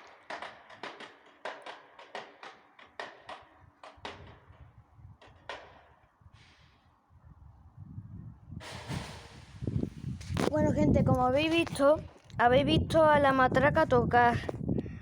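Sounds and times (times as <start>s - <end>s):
wooden clapper rattle clacks: 0.0s - 4.6s
low rumble: 7.4s - 14.6s.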